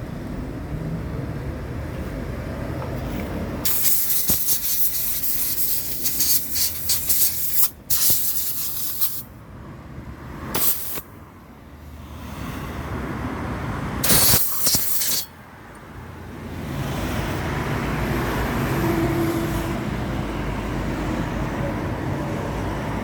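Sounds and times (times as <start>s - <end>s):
pressurised spray hissing: 3.6s - 9.3s, 10.6s - 11.1s, 14.0s - 15.3s.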